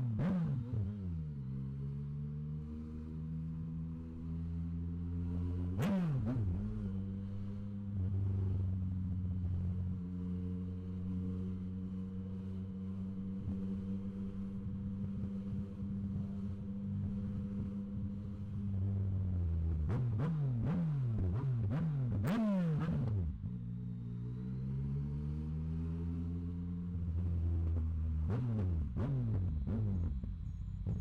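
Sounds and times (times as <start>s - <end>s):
motorcycle engine running: 26.2s - 31.0s.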